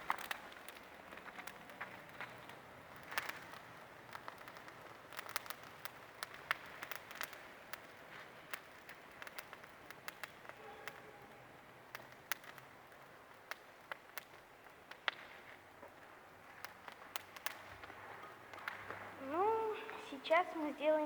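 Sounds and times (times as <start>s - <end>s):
campfire crackling: 0.0s - 21.0s
fire pops and snaps: 0.0s - 21.0s
faint hiss: 17.5s - 21.0s.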